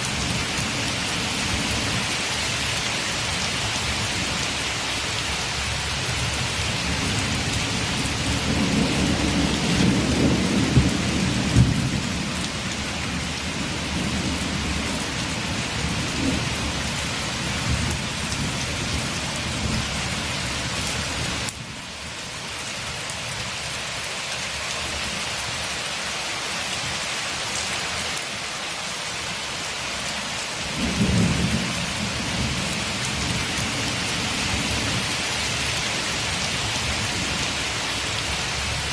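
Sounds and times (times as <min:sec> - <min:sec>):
heavy rain on a window: 0:00.0 - 0:38.9
low thunder rumbles: 0:06.5 - 0:21.8, 0:30.7 - 0:35.2.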